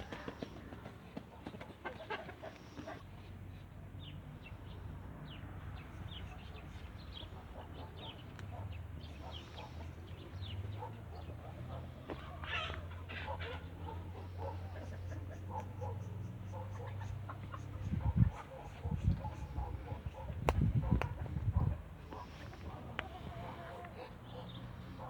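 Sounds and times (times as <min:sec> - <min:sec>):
poultry clucking: 0:01.3 - 0:03.2, 0:07.6 - 0:25.0.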